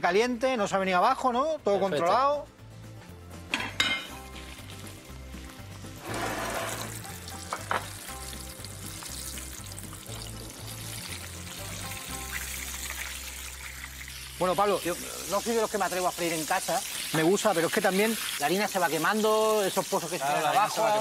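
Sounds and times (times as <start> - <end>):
background music with pulsing bass: 1.4 - 12.8
fish deep-frying in oil: 4.2 - 20.2.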